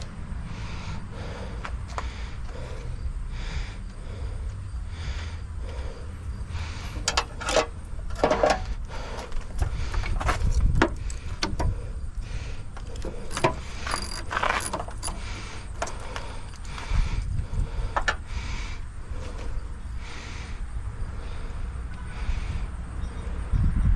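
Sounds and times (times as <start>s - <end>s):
low background rumble: 0.0s - 23.9s
person breathing heavily: 0.2s - 8.0s, 8.6s - 23.5s
metal tools clinking: 12.9s - 16.8s.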